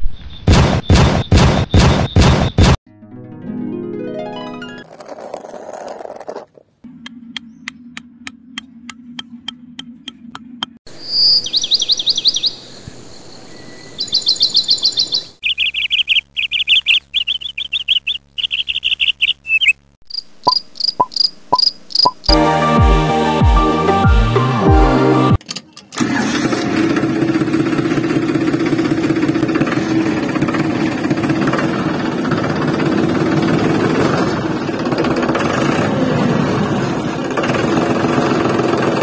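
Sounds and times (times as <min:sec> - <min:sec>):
bird trills and chirps: 0:07.1 - 0:19.8.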